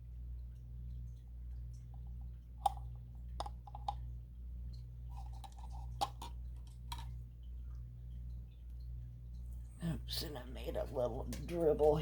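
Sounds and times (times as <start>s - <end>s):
low steady hum: 0.0s - 12.0s
plastic paint cups clicking: 2.6s - 2.8s, 3.4s - 4.0s, 5.1s - 7.2s.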